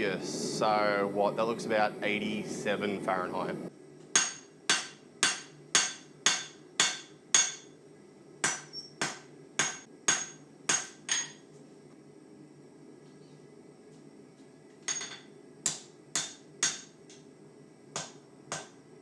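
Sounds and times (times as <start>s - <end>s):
hammer striking steel on anvil: 4.2s - 7.7s, 8.4s - 11.4s, 14.9s - 17.0s, 18.0s - 18.8s.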